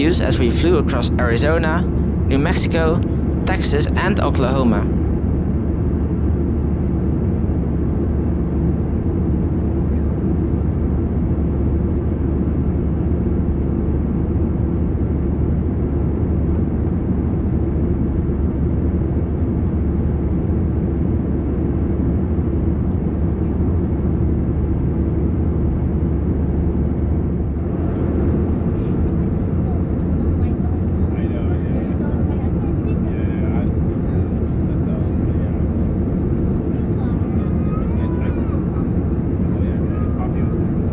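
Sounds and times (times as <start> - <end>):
airliner cabin engine and airflow noise: 0.0 - 5.3, 24.7 - 40.9.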